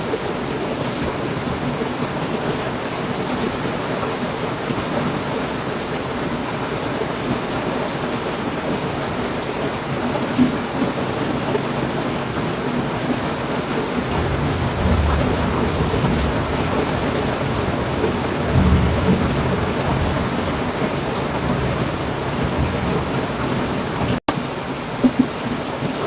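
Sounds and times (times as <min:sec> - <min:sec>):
heavy rain falling: 0:00.0 - 0:26.0
low thunder rumble: 0:14.0 - 0:24.2.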